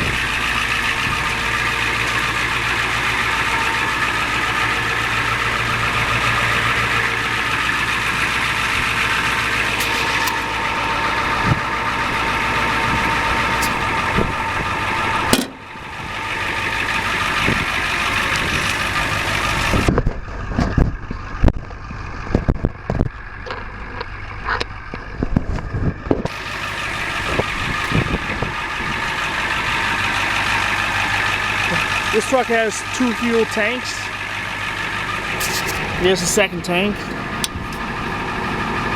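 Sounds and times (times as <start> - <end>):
diesel engine idling: 0.0 - 38.9
sharp clicks and knocks: 15.3 - 15.6.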